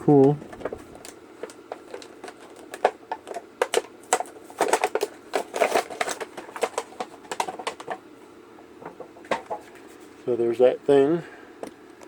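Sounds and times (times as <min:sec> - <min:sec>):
plastic packaging crinkling: 0:00.5 - 0:08.0.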